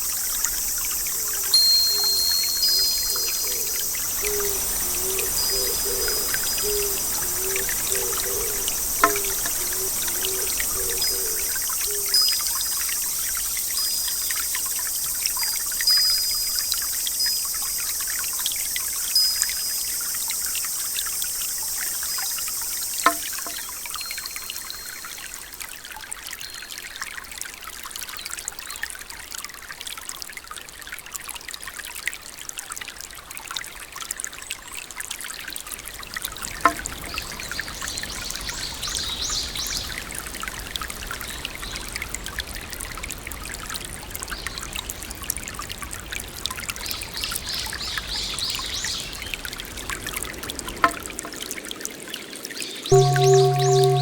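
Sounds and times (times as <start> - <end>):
bright high hiss: 0.0 - 13.0, 15.3 - 25.2, 52.9 - 54.0
trickling water: 0.0 - 54.0
bird chirping: 1.5 - 12.5, 52.9 - 54.0
steady rain: 3.2 - 15.3.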